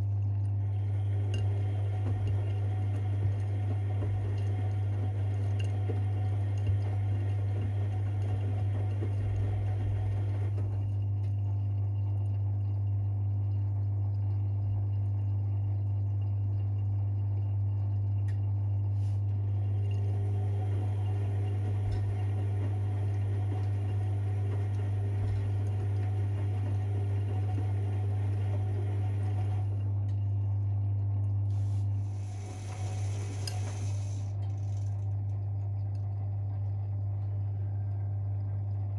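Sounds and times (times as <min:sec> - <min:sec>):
washing machine humming: 0:00.0 - 0:38.9
water sloshing in drum: 0:01.2 - 0:11.4.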